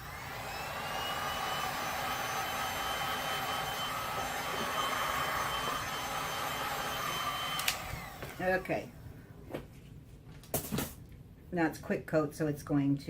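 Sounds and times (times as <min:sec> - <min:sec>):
heat gun fan whine: 0:00.0 - 0:09.0
heat gun switch click: 0:07.6 - 0:07.9.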